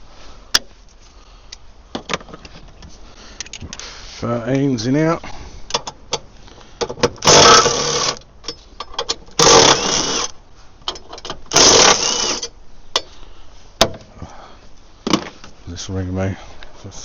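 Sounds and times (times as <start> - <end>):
cordless power wrench spinning: 7.2 - 8.2, 9.4 - 10.3, 11.5 - 12.5.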